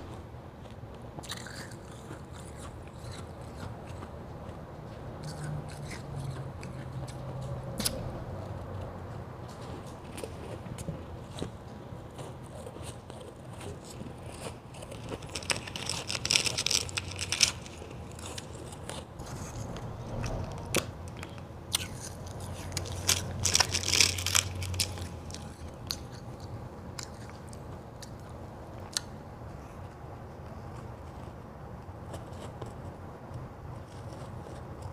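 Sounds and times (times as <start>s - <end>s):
person crunching ice: 13.6s - 19.6s, 21.8s - 26.0s.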